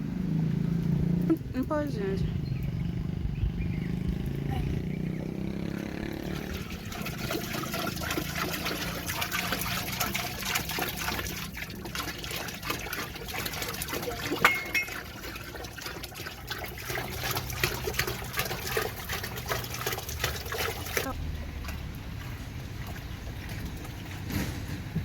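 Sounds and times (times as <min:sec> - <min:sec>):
water pouring into container: 0:05.9 - 0:24.4.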